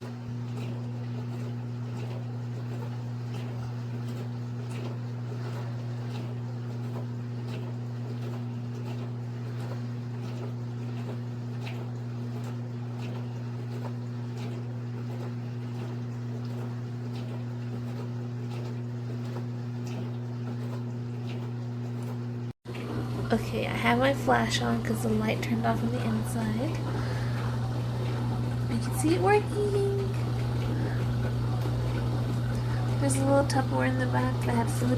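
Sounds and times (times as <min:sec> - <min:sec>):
water splashing ticks: 0:00.0 - 0:22.9
dishwasher motor hum: 0:00.0 - 0:34.9.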